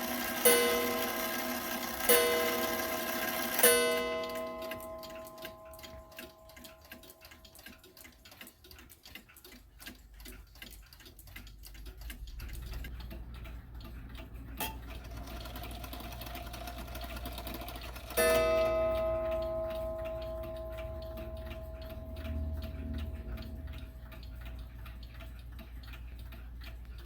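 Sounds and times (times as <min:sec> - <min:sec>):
clock chime strike: 0:00.0 - 0:06.7, 0:18.1 - 0:23.8
clock ticking: 0:00.0 - 0:27.0
low hum: 0:18.4 - 0:26.0.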